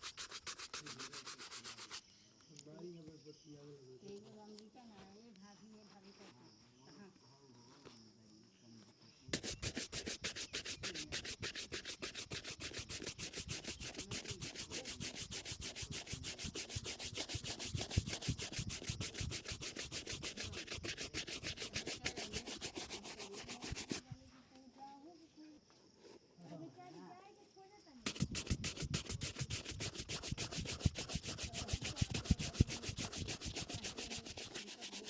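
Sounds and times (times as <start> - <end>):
shoe being buffed: 0.0 - 2.0, 9.3 - 24.0, 28.0 - 35.0.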